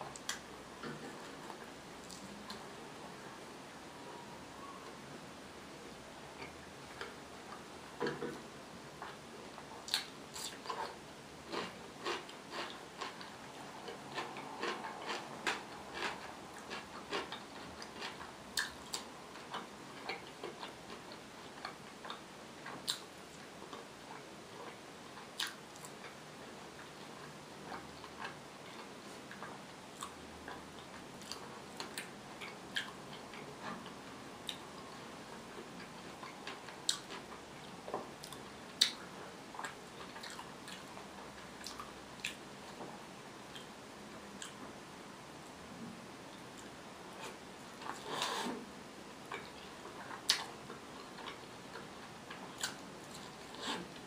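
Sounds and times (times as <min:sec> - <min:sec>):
crunchy chewing and smacks: 0:09.0 - 0:26.2, 0:26.8 - 0:43.8, 0:49.2 - 0:54.0.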